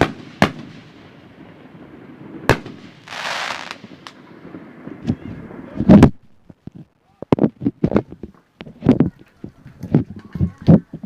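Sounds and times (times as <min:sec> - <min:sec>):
fireworks bangs: 0:00.0 - 0:06.5
firework hiss: 0:02.1 - 0:05.0.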